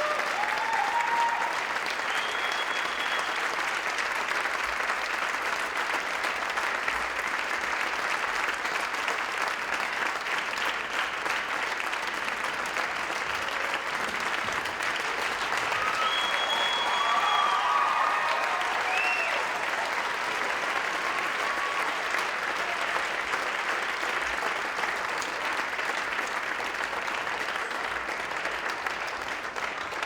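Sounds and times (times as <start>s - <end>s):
audience applauding: 0.0s - 30.0s
high whistle: 2.1s - 3.4s, 15.8s - 19.5s.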